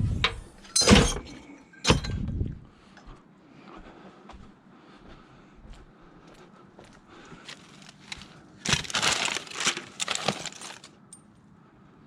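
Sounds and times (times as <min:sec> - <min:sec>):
items being rummaged through: 0:07.4 - 0:11.3.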